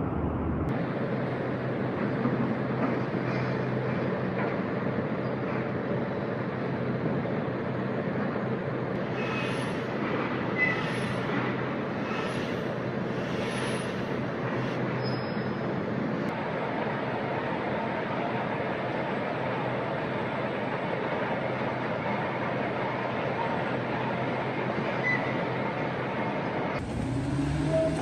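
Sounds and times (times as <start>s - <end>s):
short squealing clanks: 9.1s - 12.6s, 14.8s - 15.7s
heavy machinery humming: 26.6s - 28.0s.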